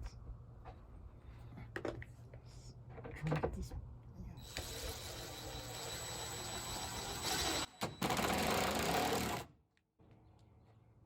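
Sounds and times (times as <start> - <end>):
power drill driving screw: 4.4 - 9.5.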